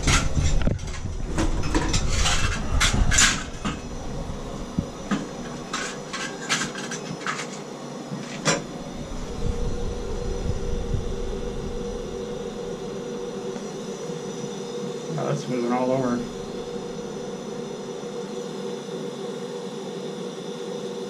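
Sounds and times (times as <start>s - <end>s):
low rumble: 0.3s - 6.0s, 8.6s - 13.7s.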